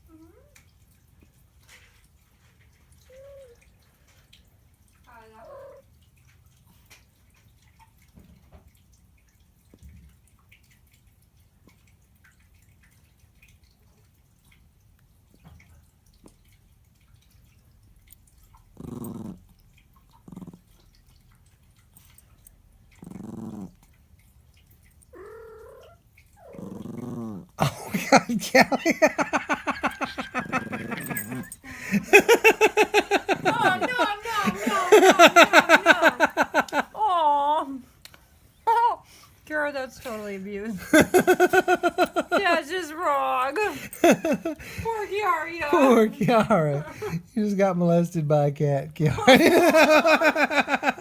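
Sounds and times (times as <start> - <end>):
dog growling: 18.7 - 20.8, 22.9 - 23.9, 25.1 - 37.0
dog whining: 25.1 - 27.4
cat meowing: 25.2 - 26.0.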